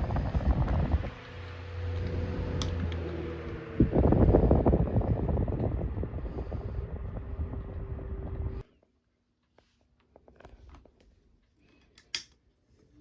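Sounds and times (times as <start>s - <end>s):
electric fan motor hum: 0.0s - 8.6s
fan air buffeting microphone: 0.0s - 8.6s.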